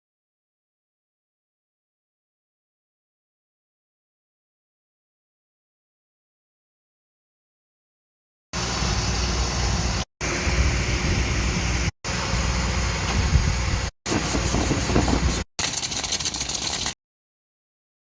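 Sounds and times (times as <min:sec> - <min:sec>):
dryer vent cleaning machine running: 0:08.6 - 0:17.0.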